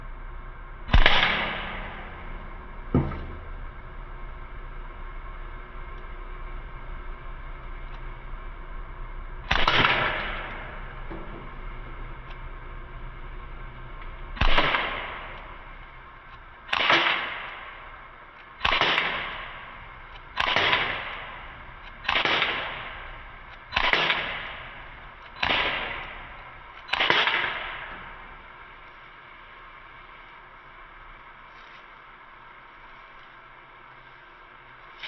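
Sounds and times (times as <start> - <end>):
bb gun shots cracking: 0.9 - 3.8, 9.5 - 11.6, 14.4 - 15.7, 16.3 - 17.9, 18.6 - 28.4.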